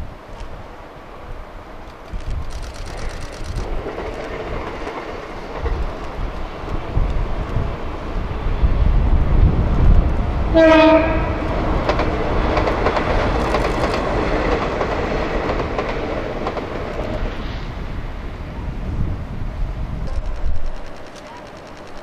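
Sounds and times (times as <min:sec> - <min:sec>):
train rumble and rail clatter: 0:00.0 - 0:22.0
train horn blast: 0:10.5 - 0:11.6.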